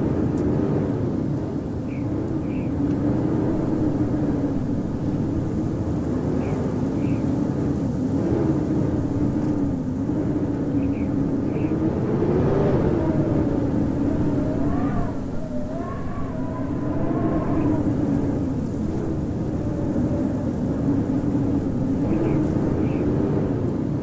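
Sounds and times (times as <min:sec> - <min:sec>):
howling blizzard wind: 0:00.0 - 0:24.0.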